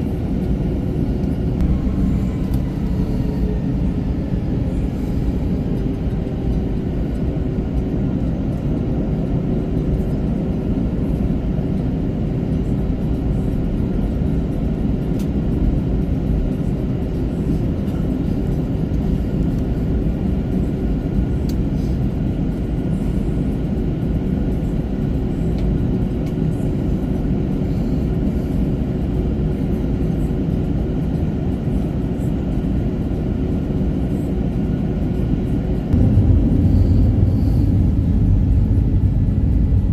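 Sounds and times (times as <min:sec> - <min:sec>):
airplane cabin rumble: 0:00.0 - 0:39.9
faint steady hum: 0:35.8 - 0:39.9.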